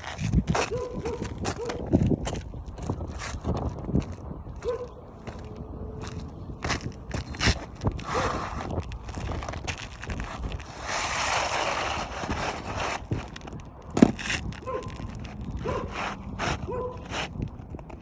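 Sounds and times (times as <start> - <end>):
rough scraping on roof: 5.2 - 18.0
shingles knocking and clicking: 12.3 - 15.3.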